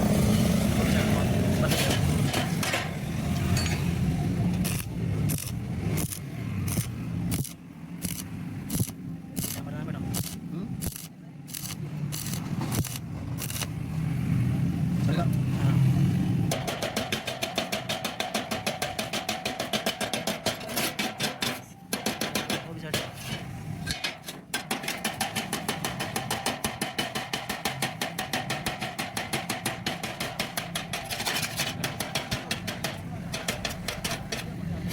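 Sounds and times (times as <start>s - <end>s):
welding arc crackling: 4.5s - 13.8s.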